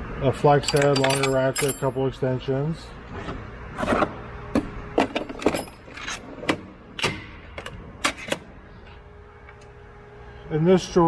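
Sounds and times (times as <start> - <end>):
metal tools clanking in drawer: 0.6 - 2.0, 5.0 - 6.6.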